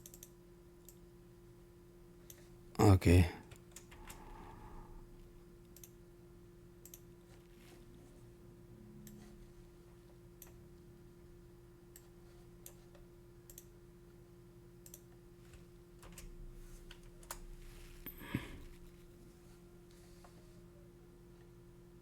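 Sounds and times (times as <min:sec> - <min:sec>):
keyboard and mouse clicks: 0:00.0 - 0:01.0, 0:06.8 - 0:07.0
low electrical hum: 0:00.0 - 0:22.0.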